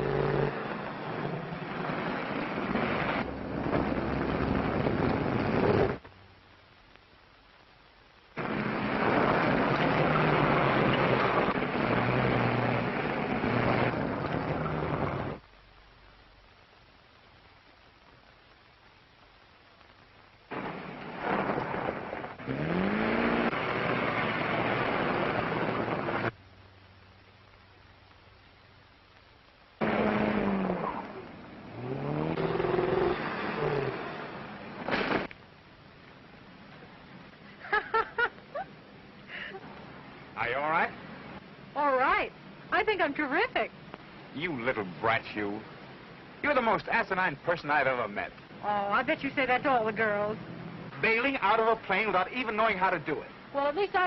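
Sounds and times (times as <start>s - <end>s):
rushing wind: 0.0s - 6.0s, 20.5s - 26.4s
film hiss: 0.0s - 54.0s.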